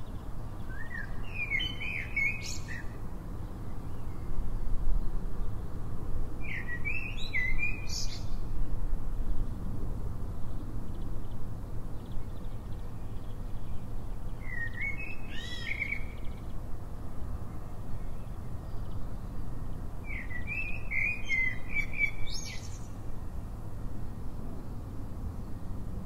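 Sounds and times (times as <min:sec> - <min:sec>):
songbird warbling: 0:14.4 - 0:16.2.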